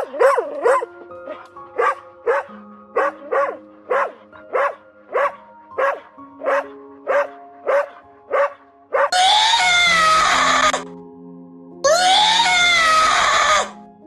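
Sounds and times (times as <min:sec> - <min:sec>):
animal barking: 0:00.0 - 0:10.8
gentle background music: 0:00.0 - 0:14.0
long wavering cry: 0:09.1 - 0:10.8, 0:11.8 - 0:13.8.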